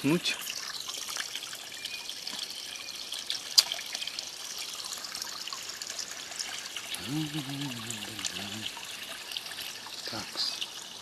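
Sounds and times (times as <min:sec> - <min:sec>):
spring water trickling: 0:00.0 - 0:11.0.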